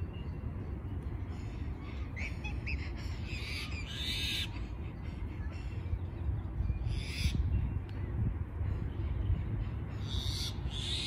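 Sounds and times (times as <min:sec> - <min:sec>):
bird calls: 0:01.3 - 0:07.5.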